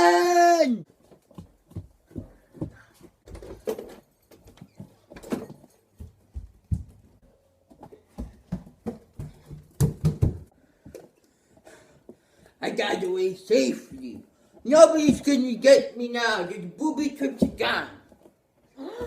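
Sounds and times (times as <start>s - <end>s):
knocks and thumps: 7.8s - 11.0s.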